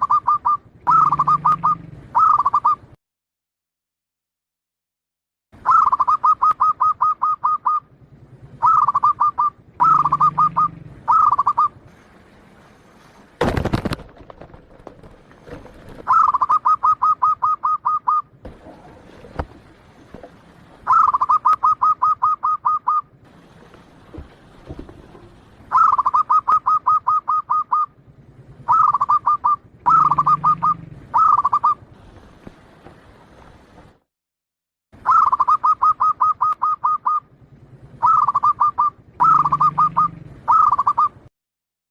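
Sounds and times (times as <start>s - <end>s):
dove cooing: 0.0s - 2.9s, 5.6s - 7.9s, 8.6s - 11.8s, 14.8s - 23.2s, 24.6s - 28.0s, 28.6s - 31.8s, 35.1s - 37.2s, 38.0s - 41.2s.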